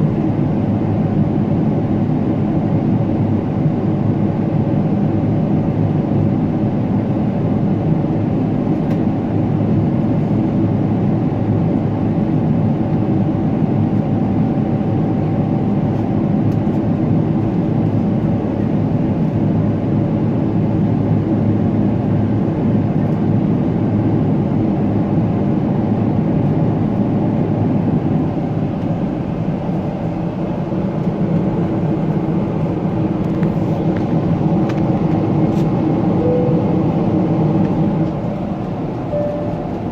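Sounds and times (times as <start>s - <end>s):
airplane cabin engine rumble: 0.0s - 39.9s
faint steady hum: 36.2s - 38.2s, 39.0s - 39.9s.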